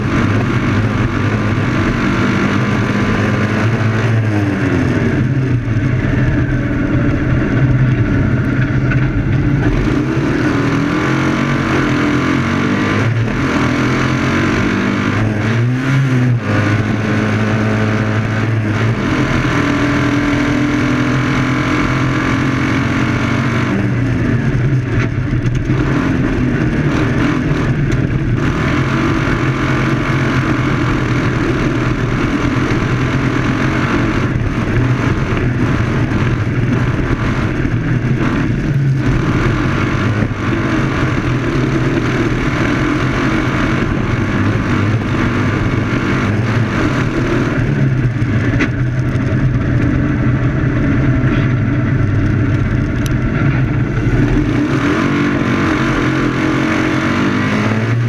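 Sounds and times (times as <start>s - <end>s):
car engine running hard: 0.0s - 58.0s.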